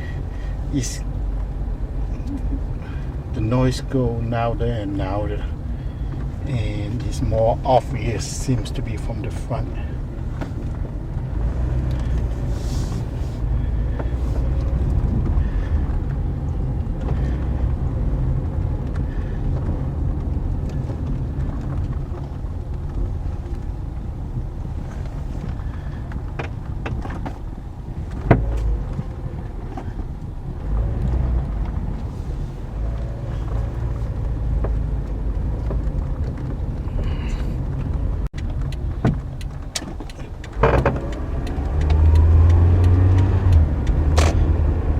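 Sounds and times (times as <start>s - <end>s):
car road and engine rumble: 0.0s - 44.9s
suspension knocks and rattles: 0.0s - 44.9s.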